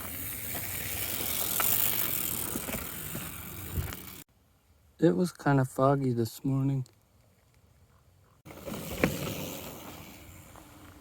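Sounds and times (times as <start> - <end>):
bicycle tyres crunching on dirt: 0.0 - 4.3, 8.4 - 11.0.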